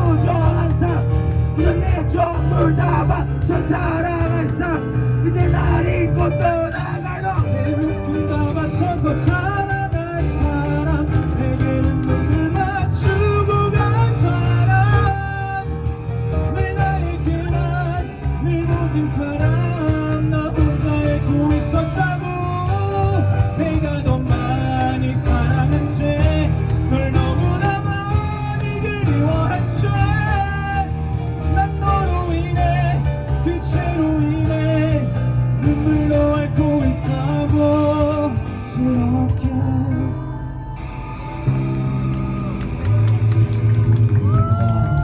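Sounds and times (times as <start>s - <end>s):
cajon beat: 0.0s - 39.6s, 41.4s - 45.0s
bass guitar: 0.0s - 45.0s
electric guitars: 0.0s - 45.0s
keyboard: 0.0s - 45.0s.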